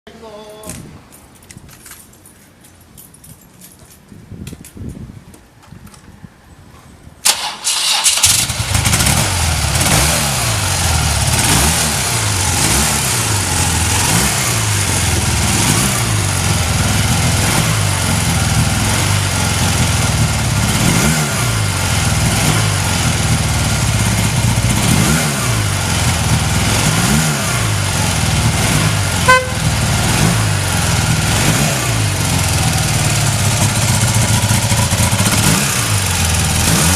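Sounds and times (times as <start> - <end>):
motorcycle engine starting and idling: 7.2 - 36.9
short high beep: 29.3 - 29.7.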